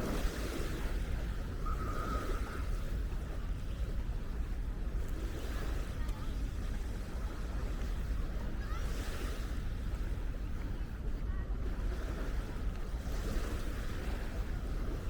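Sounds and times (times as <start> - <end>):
small waves on sandy beach: 0.0 - 15.0
wind rumbling on microphone: 0.0 - 15.0.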